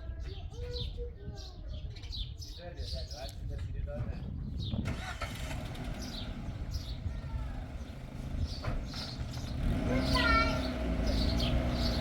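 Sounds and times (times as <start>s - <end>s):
birds chirping: 4.1s - 12.0s.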